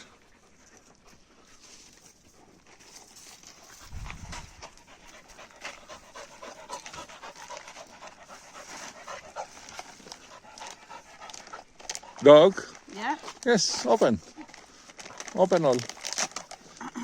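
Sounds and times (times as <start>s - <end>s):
dogs panting: 0.0s - 17.0s
small clicks and rustles: 0.6s - 17.0s.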